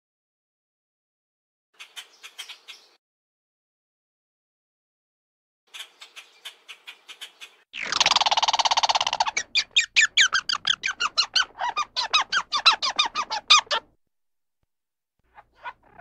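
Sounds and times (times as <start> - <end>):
squeaky animal calls: 5.8 - 13.9, 15.4 - 16.0.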